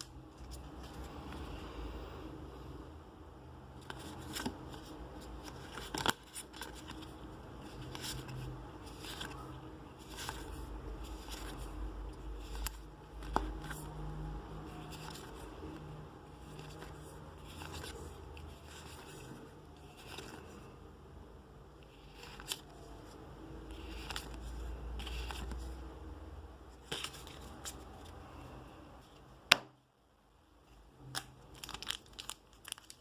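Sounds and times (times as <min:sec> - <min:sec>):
cards and packaging rustling: 0:00.0 - 0:01.6, 0:03.8 - 0:20.8, 0:21.8 - 0:25.9, 0:26.8 - 0:28.4, 0:31.0 - 0:33.0.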